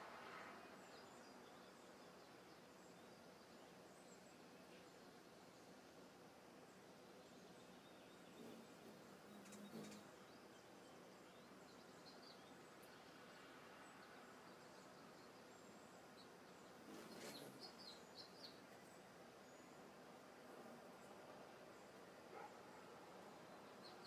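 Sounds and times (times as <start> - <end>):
faint bird chirps: 6.6 - 24.0.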